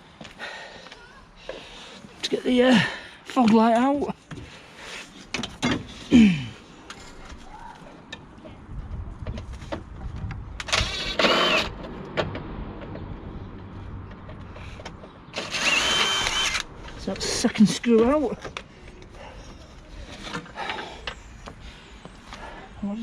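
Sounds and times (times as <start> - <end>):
power driver whirring: 10.6 - 11.8, 15.3 - 16.7.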